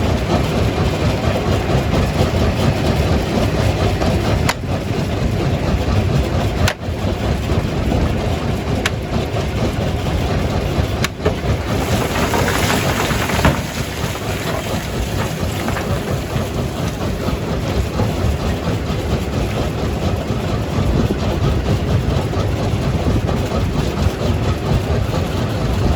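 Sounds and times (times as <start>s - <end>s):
heavy machinery rumble: 0.0s - 25.9s
crunching and clatter: 10.8s - 19.9s
rock grinding and cracking: 11.1s - 17.4s.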